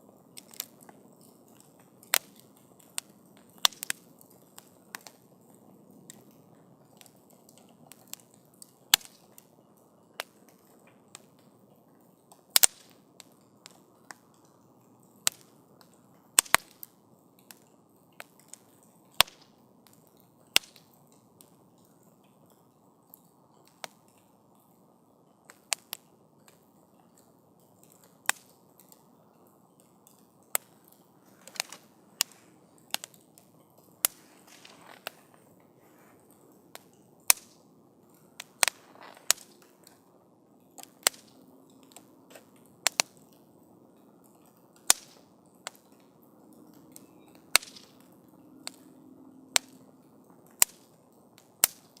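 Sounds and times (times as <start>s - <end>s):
campfire crackling: 0.0s - 52.0s
hiss of flames: 34.0s - 37.6s.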